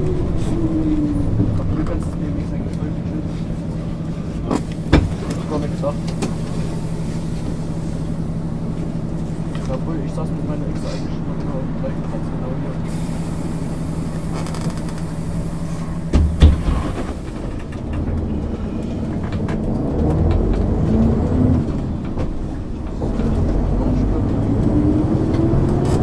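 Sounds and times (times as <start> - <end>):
bus diesel engine accelerating: 0.0 - 26.0
loud knock: 16.1 - 17.1.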